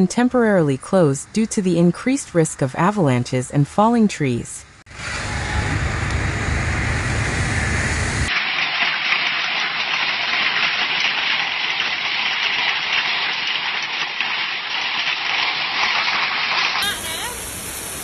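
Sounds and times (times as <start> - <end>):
heavy rain pelting down: 4.9 - 18.0.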